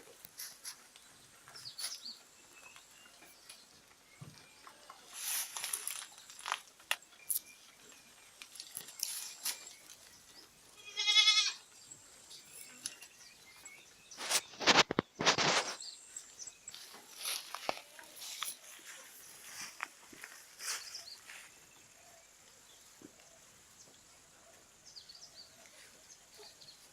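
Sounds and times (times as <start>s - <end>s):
rustling crunching noise: 0.0s - 2.0s, 4.4s - 10.4s, 14.1s - 21.8s
goat bleating: 10.8s - 11.6s.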